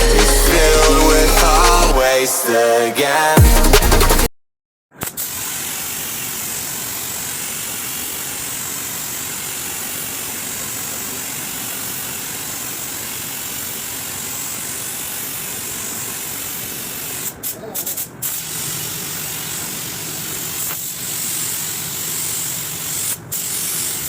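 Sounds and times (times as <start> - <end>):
rushing hiss of air: 5.2 - 24.0.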